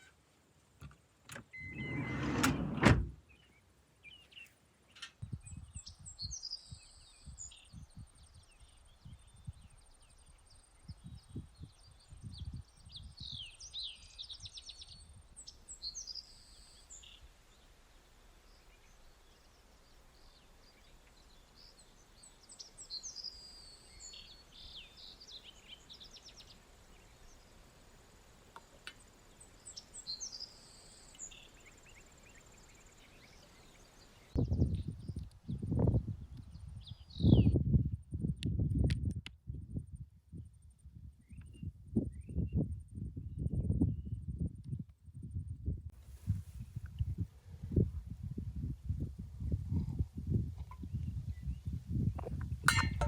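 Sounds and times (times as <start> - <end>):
birds chirping and trilling: 1.4 - 7.7
wind buffeting microphone: 10.9 - 13.6, 34.3 - 53.0.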